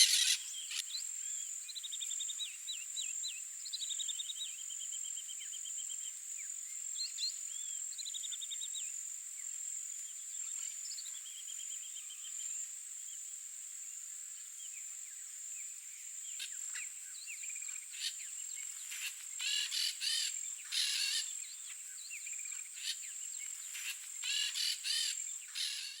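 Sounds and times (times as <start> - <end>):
parakeets screechy chattering: 0.0 - 0.4
bird trills: 0.0 - 0.8, 19.0 - 21.3, 23.8 - 26.0
high insect drone: 7.9 - 26.0.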